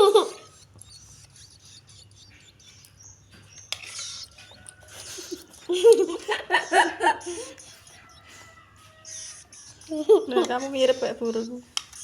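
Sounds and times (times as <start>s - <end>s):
nestlings begging chirps: 0.0s - 12.0s
person speaking: 9.8s - 11.7s.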